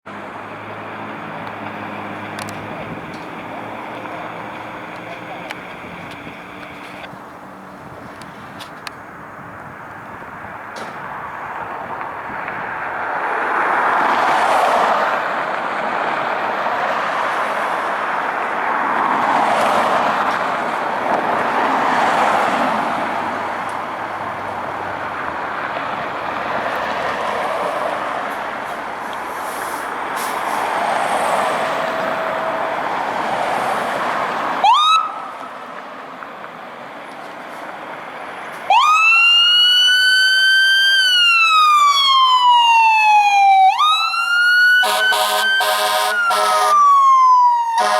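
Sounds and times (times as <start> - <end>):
electronic siren wailing: 31.4 - 35.4, 38.7 - 47.9
siren chirp: 31.4 - 35.4, 38.7 - 47.9.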